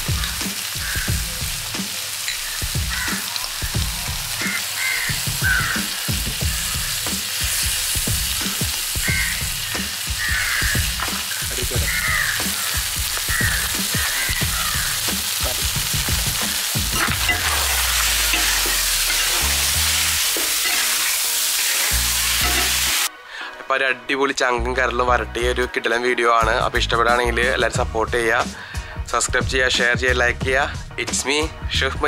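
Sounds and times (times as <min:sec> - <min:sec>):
meat sizzling in a pan: 0:00.0 - 0:23.1
ladle scraping a pan: 0:22.3 - 0:23.1.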